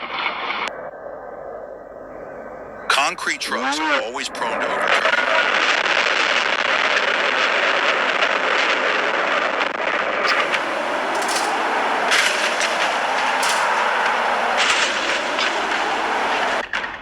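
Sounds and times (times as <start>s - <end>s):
road traffic noise: 10.3s - 16.6s
short sharp noises: 10.3s - 16.6s.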